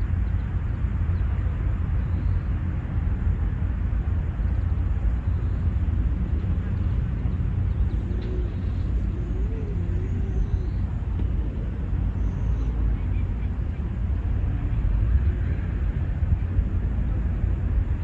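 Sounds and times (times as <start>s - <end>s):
faint distant voice: 8.0s - 11.8s.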